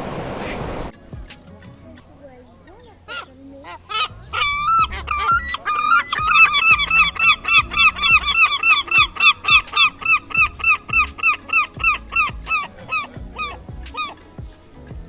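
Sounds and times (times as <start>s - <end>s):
bird calling: 1.2s - 15.0s.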